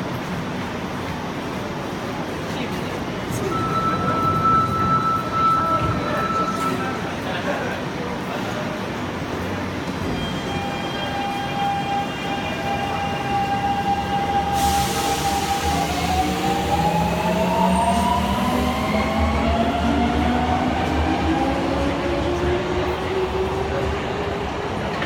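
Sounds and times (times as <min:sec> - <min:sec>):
train low rumble: 0:00.0 - 0:25.0
air hiss: 0:14.4 - 0:16.8.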